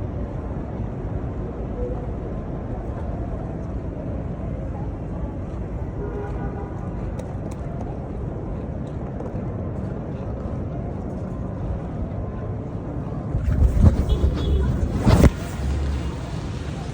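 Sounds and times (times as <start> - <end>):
city street traffic rumble: 0.0 - 16.9.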